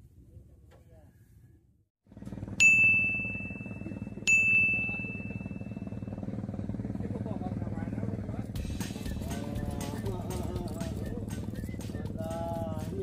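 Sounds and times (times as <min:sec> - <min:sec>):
bright ding sound effect: 0:02.6 - 0:06.0.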